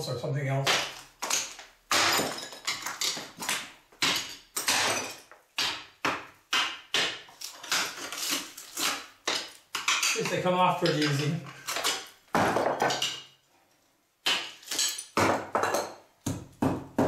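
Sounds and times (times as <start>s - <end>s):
chisel struck chipping tiles: 0.6s - 10.2s, 14.2s - 17.0s.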